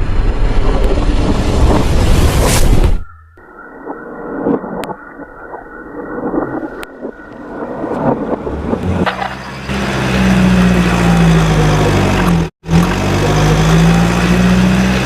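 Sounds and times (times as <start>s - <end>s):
engine-like drone: 3.1s - 15.0s.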